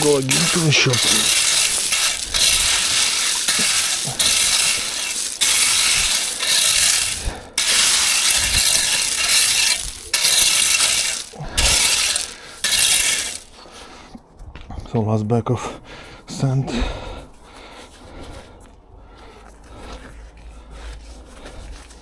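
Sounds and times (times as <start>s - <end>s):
stones clinking: 0.0s - 13.7s
gravel scraped with hand tool: 0.0s - 13.9s.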